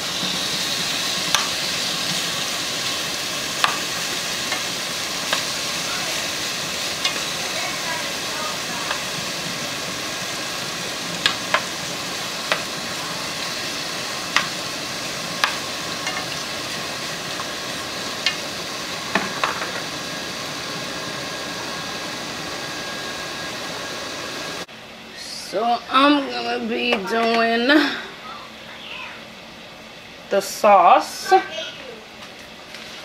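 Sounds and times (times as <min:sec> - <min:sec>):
shrimp sizzling in oil: 0:00.0 - 0:24.7.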